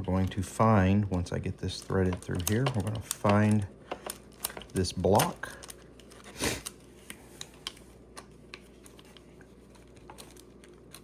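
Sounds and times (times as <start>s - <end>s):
small hardware clicking against plastic: 1.8s - 5.8s.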